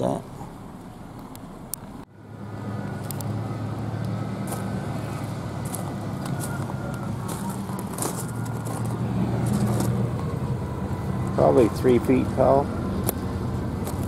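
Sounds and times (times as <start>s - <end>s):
vehicle engine humming: 0.0s - 14.0s
footsteps on gravel: 4.4s - 10.3s, 13.8s - 14.0s.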